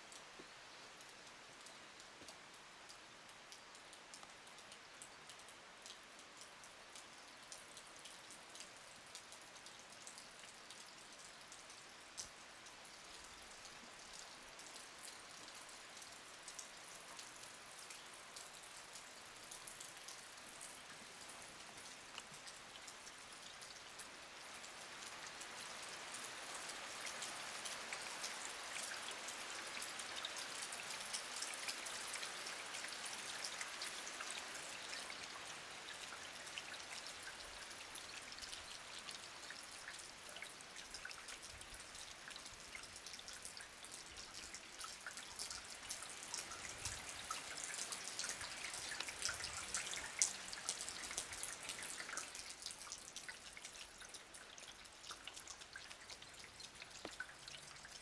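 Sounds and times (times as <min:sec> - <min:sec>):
heavy rain pattering: 0:43.5 - 0:52.7.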